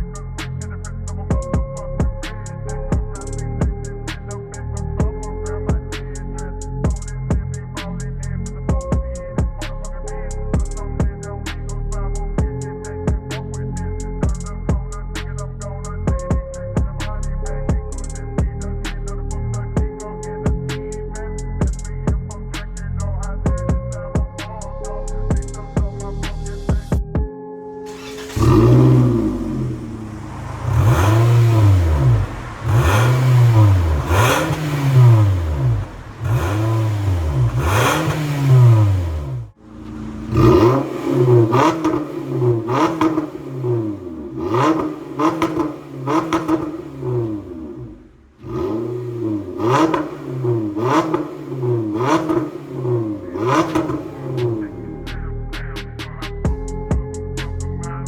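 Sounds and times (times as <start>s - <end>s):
car engine revving: 27.9s - 55.3s.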